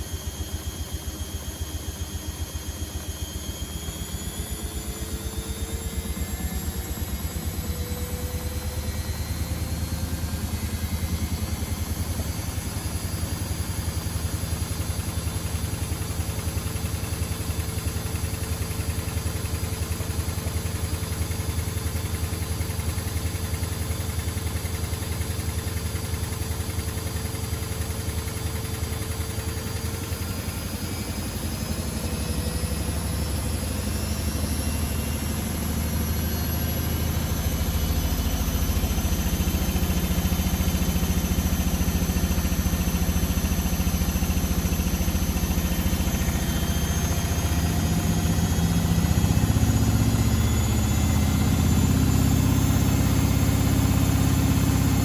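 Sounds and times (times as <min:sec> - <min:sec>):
washing machine motor hum: 0:00.0 - 0:55.0
high whine rising in pitch: 0:03.2 - 0:14.8, 0:30.5 - 0:55.0.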